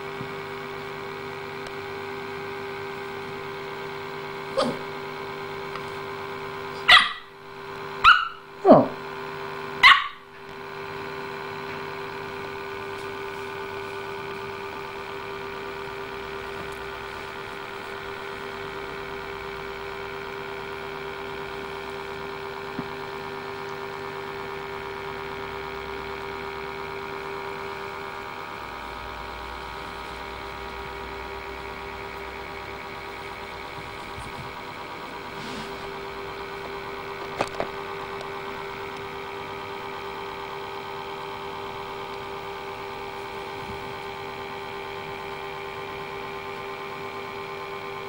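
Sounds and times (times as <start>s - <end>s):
electrical hum: 0.0s - 48.0s
puppy barking: 4.5s - 5.0s, 6.8s - 7.3s, 8.0s - 9.0s, 9.8s - 10.3s.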